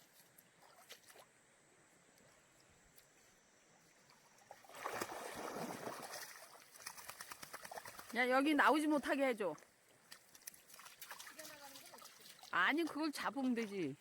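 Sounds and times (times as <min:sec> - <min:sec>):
stream trickling: 0:00.0 - 0:14.0
dog splashing through water: 0:04.5 - 0:08.4, 0:10.0 - 0:14.0.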